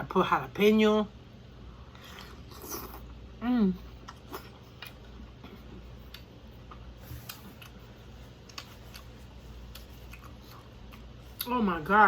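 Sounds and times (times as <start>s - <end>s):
faint steady hum: 0.0s - 12.0s
person eating clicks and smacks: 4.0s - 5.2s, 6.0s - 11.5s.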